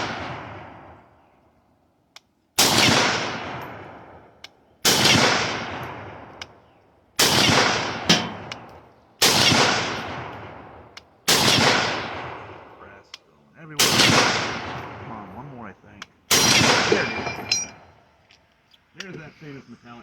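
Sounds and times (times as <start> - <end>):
rifle shots with echo: 0.0 - 1.1, 2.6 - 6.6, 7.2 - 13.0, 13.7 - 15.3, 16.3 - 17.8.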